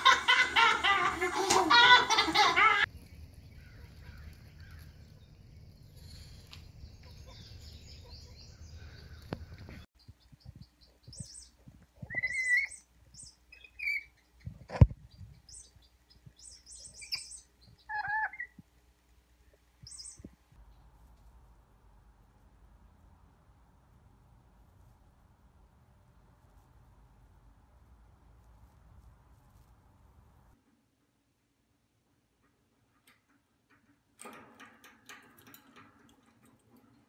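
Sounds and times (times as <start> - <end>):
pet bird chirping and squeaking: 12.0 - 14.2, 16.4 - 18.6.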